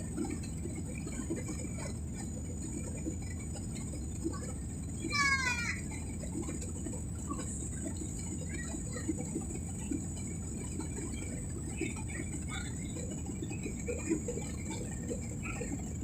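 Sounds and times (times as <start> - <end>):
airliner engine and airflow rumble: 0.0 - 16.0.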